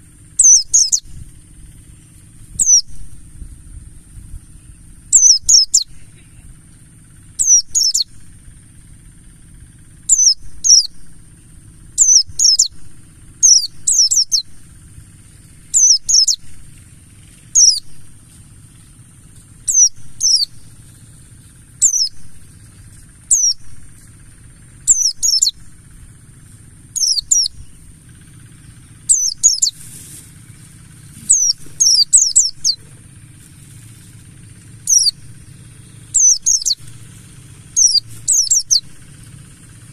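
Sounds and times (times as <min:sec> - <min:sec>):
bird high downward chirps: 0:00.0 - 0:39.9.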